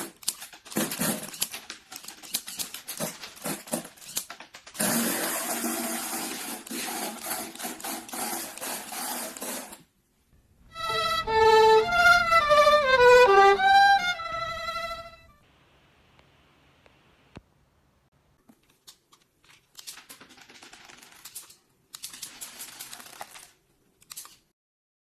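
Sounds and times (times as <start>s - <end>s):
plastic parts clicking and rattling: 0.0s - 9.8s, 18.5s - 24.5s.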